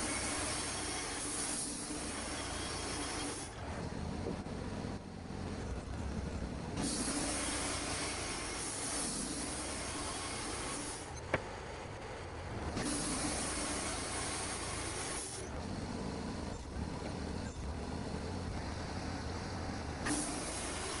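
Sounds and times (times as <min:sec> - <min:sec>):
high hiss of sawing: 0:00.0 - 0:03.6, 0:06.8 - 0:11.1, 0:12.8 - 0:15.5, 0:18.4 - 0:21.0
sawmill humming: 0:00.0 - 0:21.0.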